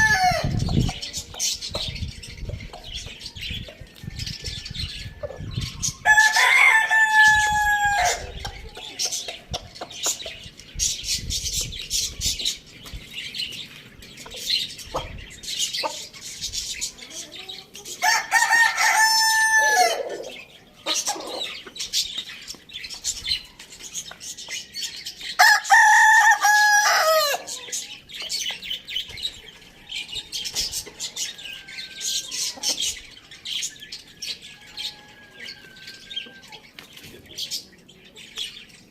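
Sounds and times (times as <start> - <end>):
chicken clucking and chirping: 0.0 - 38.9
rooster crowing: 4.5 - 8.4, 18.0 - 20.3, 25.4 - 27.5, 34.6 - 36.6.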